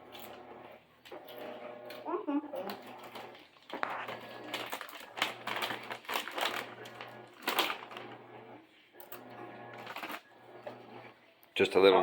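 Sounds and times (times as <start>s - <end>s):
tortilla chips crunching: 3.2s - 8.1s.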